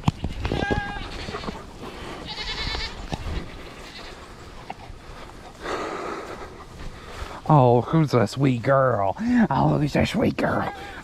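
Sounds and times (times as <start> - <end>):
goats bleating: 0.0 - 4.5, 10.4 - 11.0.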